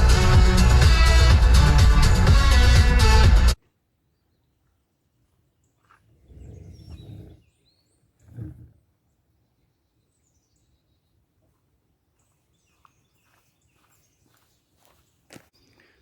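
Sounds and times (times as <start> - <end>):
low rumbles: 0.0 - 3.6
small birds chirping: 5.5 - 16.0.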